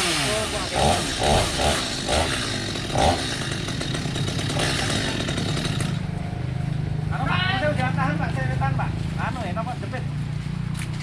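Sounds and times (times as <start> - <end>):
chainsaw cutting tree trunk: 0.0 - 6.1.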